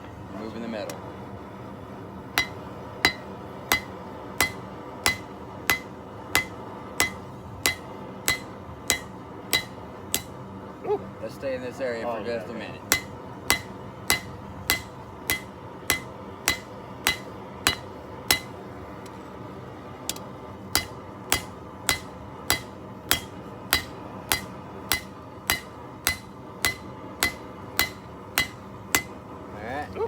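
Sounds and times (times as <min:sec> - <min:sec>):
hammer striking steel on anvil: 0:02.4 - 0:10.5, 0:12.8 - 0:19.2, 0:20.1 - 0:29.3.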